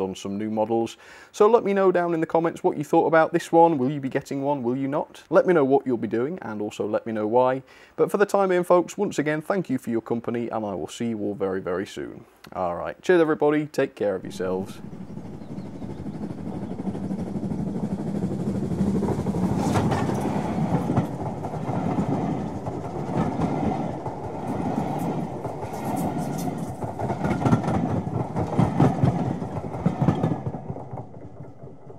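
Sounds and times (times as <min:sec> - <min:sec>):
train rumbling past: 0:14.0 - 0:31.9
wheels clicking over rail joints: 0:14.3 - 0:31.9.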